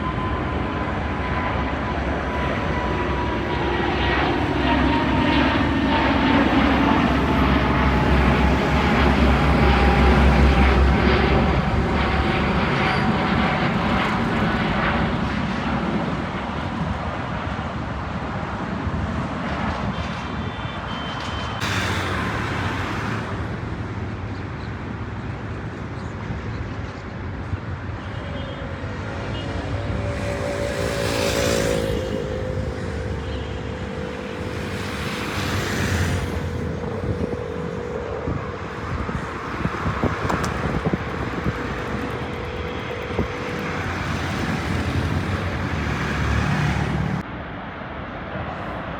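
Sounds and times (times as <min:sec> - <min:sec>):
multi-pitched engine whine: 0:00.0 - 0:48.0
jet airliner engines passing: 0:00.0 - 0:48.9.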